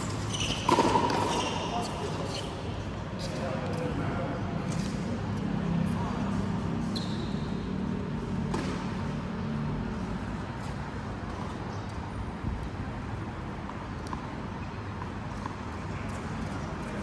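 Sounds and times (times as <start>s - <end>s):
steady background noise: 0.0s - 17.0s
racket hitting ball: 0.5s - 1.5s, 8.5s - 9.0s.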